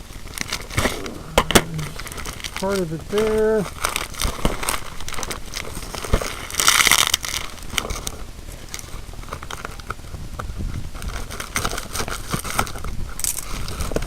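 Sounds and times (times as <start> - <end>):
packaging crinkling and rustling: 3.8 - 9.8.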